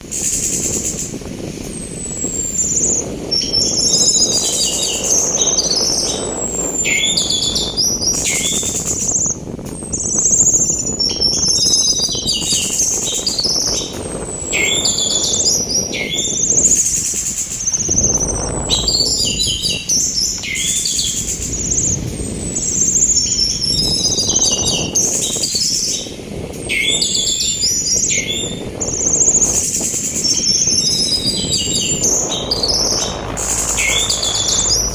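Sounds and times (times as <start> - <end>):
sea wind rushing: 0.0 - 34.9
thrush singing: 30.4 - 34.9.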